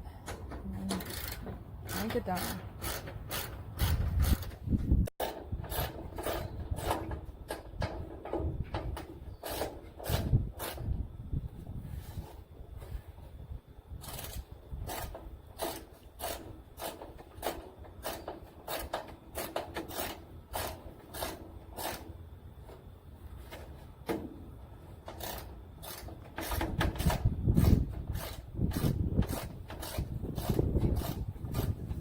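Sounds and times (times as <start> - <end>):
hand ratchet cranking: 0.2 - 4.6, 25.0 - 32.0.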